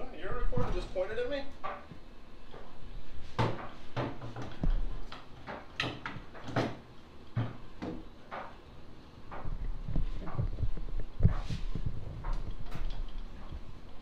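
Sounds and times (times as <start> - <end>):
dull low thuds: 9.3 - 12.6.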